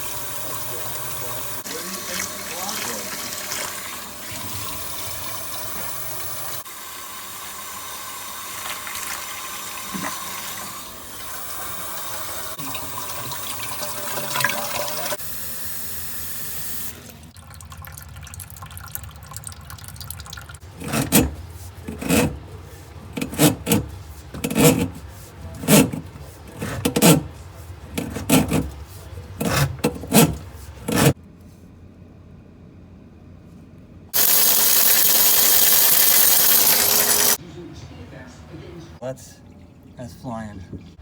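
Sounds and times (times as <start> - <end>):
water running in plumbing: 0.0 - 31.2, 34.2 - 37.4, 39.0 - 41.0
loud rasping strokes: 20.6 - 31.2.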